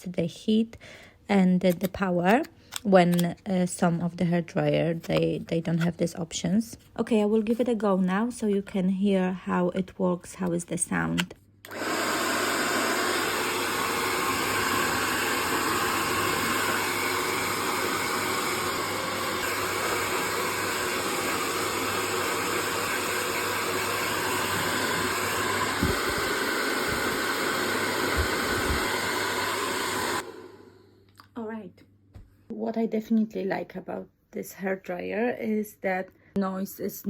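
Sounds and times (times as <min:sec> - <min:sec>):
hair dryer blowing: 0:11.7 - 0:31.0.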